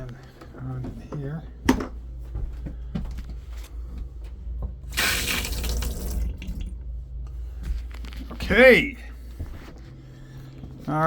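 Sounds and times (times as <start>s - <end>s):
water gushing from faucet: 4.9s - 6.8s.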